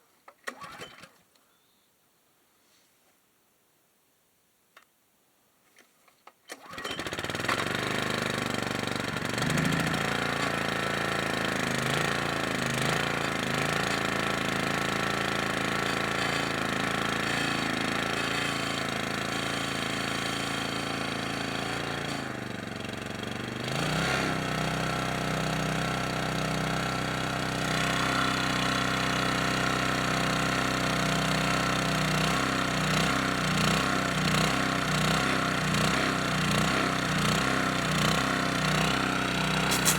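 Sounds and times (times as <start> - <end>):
small gasoline engine running: 6.6 - 39.9.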